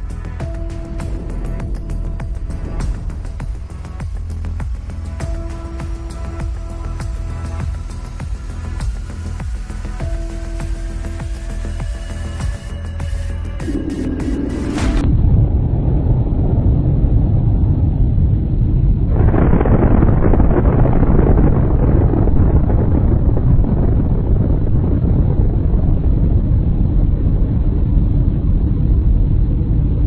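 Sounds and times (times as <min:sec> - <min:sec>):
vehicle driving rumble: 0:00.0 - 0:16.0
rush of wind-like noise: 0:00.0 - 0:30.0.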